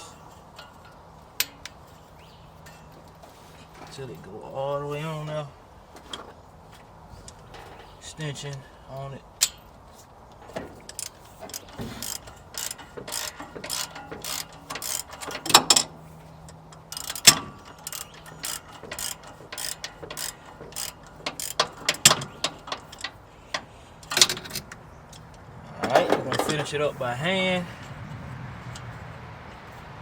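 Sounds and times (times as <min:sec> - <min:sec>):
tool clacks: 0:10.4 - 0:16.0, 0:16.7 - 0:26.9
ratchet wrench clicking: 0:10.9 - 0:25.4.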